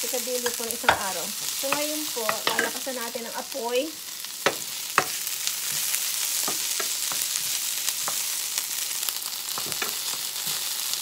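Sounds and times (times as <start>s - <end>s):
food sizzling in oil: 0.0s - 11.0s
wooden spatula knocking on pans: 0.4s - 2.9s, 4.4s - 8.3s, 9.5s - 10.3s.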